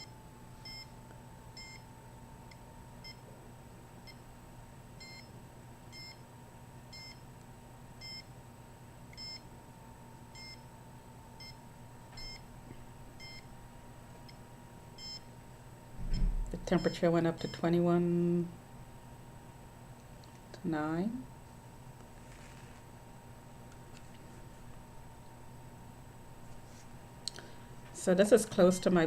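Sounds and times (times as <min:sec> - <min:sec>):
meter beeping: 0:00.0 - 0:00.9, 0:01.6 - 0:01.8, 0:08.0 - 0:08.3, 0:09.2 - 0:09.4, 0:10.4 - 0:10.6, 0:12.2 - 0:12.4, 0:13.2 - 0:13.5, 0:15.0 - 0:15.3, 0:16.0 - 0:17.6.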